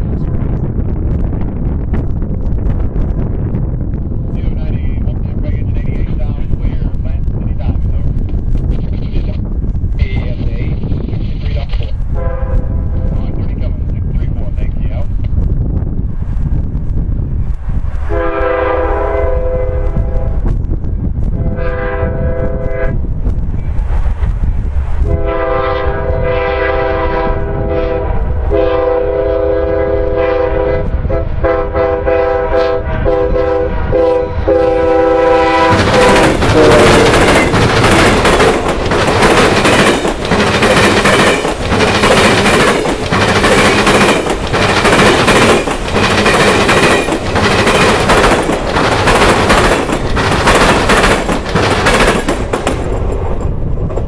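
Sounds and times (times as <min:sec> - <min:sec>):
train horn blasts: 0:12.1 - 0:13.1, 0:18.1 - 0:20.4, 0:21.4 - 0:23.0, 0:25.0 - 0:37.4
train wheels clattering over crossing: 0:34.6 - 0:54.0.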